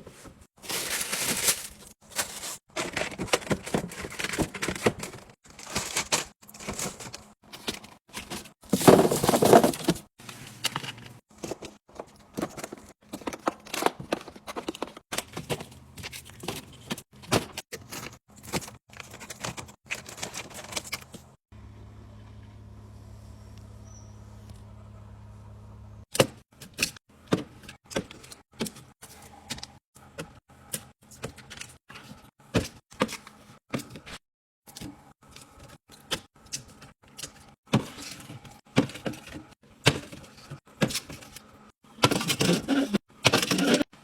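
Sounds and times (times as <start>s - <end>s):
packaging rustling: 0.6s - 7.3s, 8.2s - 10.1s
low steady hum: 20.6s - 26.0s.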